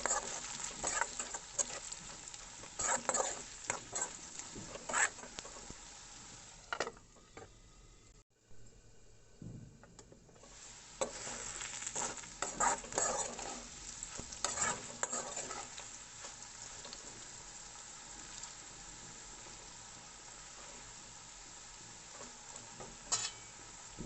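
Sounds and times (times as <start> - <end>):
spatula scraping a pan: 0.0 - 7.5, 10.4 - 17.4, 22.0 - 23.7
potatoes sizzling in oil: 0.0 - 7.9, 10.2 - 24.0.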